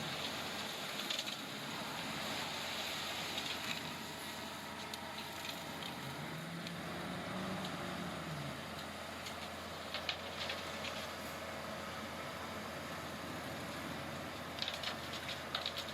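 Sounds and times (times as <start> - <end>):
small clicks and crackles: 0.0 - 6.8, 8.7 - 11.5, 13.6 - 15.9
diesel engine running: 0.0 - 15.9.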